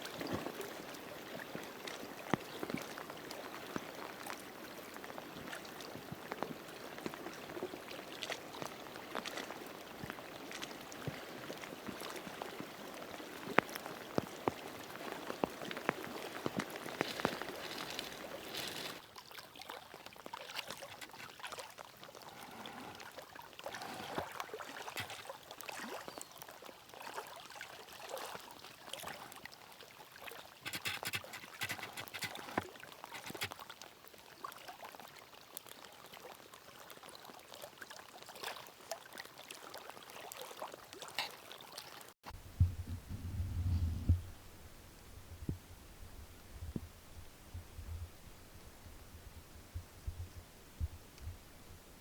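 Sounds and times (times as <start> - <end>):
small crackling drips: 0.0 - 27.2
water trickling and splashing: 0.0 - 42.2.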